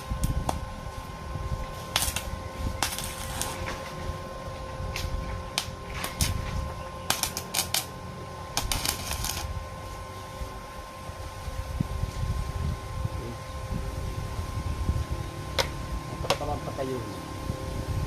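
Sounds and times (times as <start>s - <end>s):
arc welding crackle: 0.0s - 18.0s
steady electrical hum: 0.0s - 18.0s.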